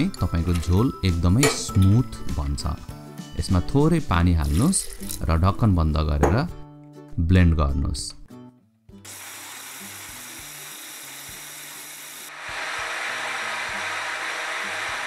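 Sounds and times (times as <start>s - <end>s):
blender motor whirring: 9.1s - 15.0s.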